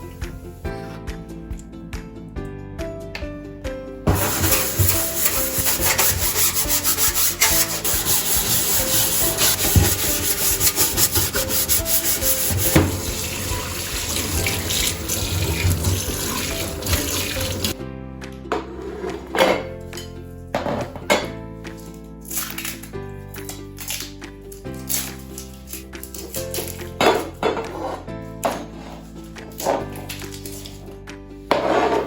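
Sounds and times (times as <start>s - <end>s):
soft background music: 0.0s - 32.0s
scrubbing a hard surface: 4.1s - 17.8s, 26.1s - 30.7s, 31.5s - 32.0s.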